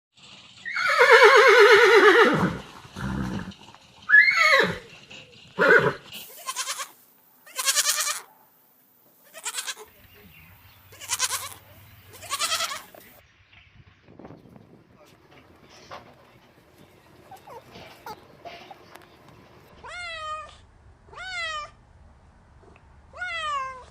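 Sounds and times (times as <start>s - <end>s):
goat bleating: 5.9s - 8.3s, 9.2s - 9.9s, 10.9s - 13.0s, 17.3s - 18.2s.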